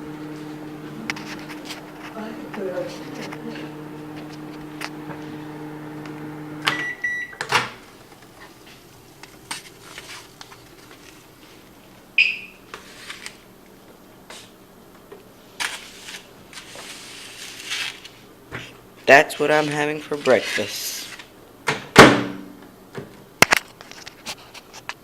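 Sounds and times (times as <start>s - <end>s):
microwave oven humming: 0.0s - 15.6s
short high beep: 6.7s - 7.4s.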